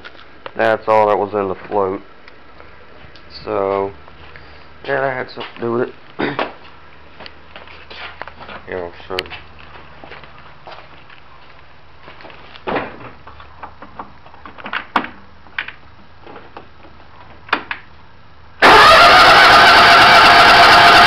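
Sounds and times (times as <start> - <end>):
small tractor engine running: 18.6 - 21.0.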